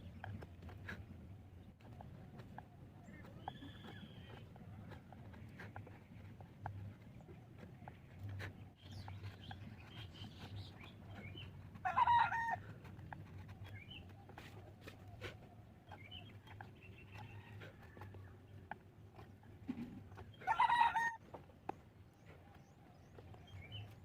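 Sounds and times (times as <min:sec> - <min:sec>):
faint bird chirps: 0:03.0 - 0:04.4
chicken calling: 0:20.4 - 0:21.2.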